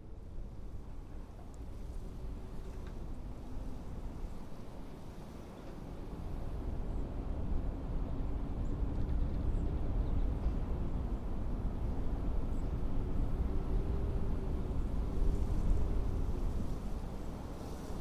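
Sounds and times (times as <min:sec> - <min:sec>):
faint wind whistling: 0:00.0 - 0:18.0
blizzard wind gusting: 0:00.3 - 0:18.0.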